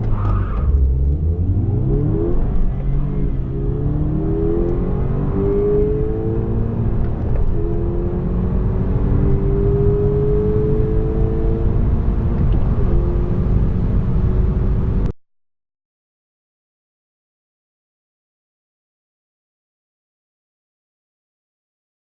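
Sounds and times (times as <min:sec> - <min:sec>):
car engine accelerating hard: 0:00.0 - 0:15.1.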